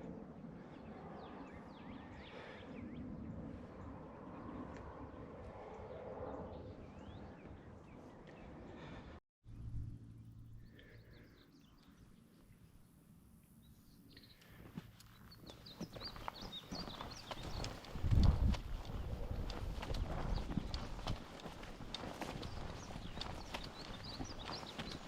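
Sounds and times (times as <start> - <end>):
birds chirping: 10.6 - 25.0
footfalls on trail: 14.7 - 25.0
wind-like rush: 15.8 - 25.0.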